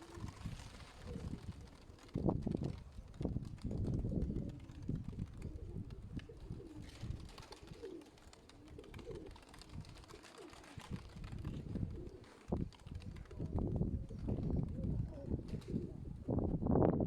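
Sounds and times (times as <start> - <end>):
pigeons cooing: 4.2 - 16.3.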